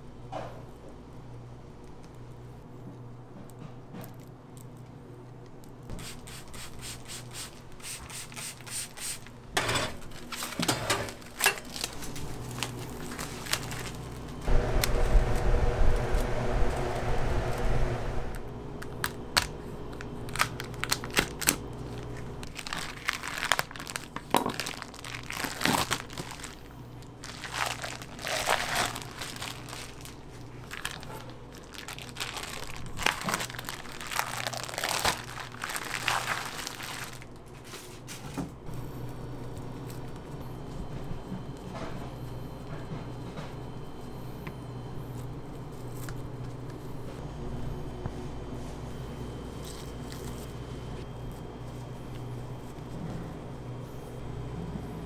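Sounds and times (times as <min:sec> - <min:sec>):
material crinkling and crumpling: 0:10.0 - 0:15.4, 0:18.9 - 0:41.9, 0:48.6 - 0:53.1
low rumble: 0:14.4 - 0:18.7.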